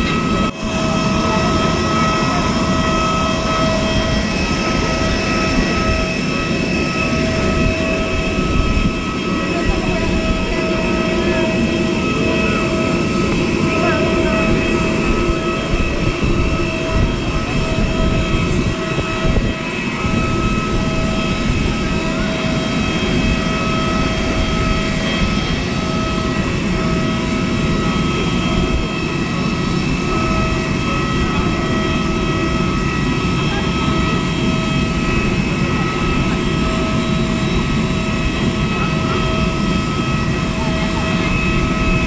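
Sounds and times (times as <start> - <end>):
jet airliner rush and whine: 0.0 - 42.0.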